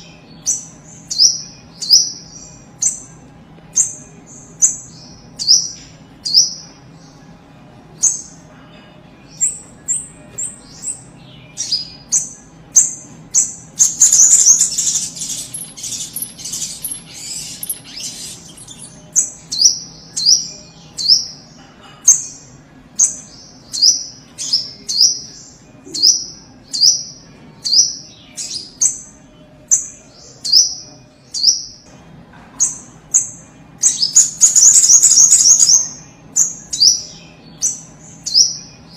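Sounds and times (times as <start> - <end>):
bird rapid chattering: 11.6 - 21.3, 32.6 - 37.1
bird calling high chips: 13.8 - 19.3.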